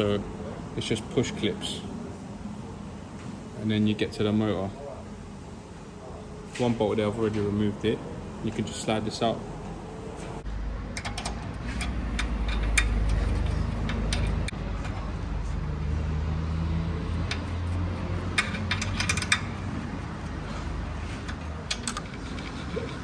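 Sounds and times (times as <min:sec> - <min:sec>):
tools and metal parts clinking: 0:10.8 - 0:23.0.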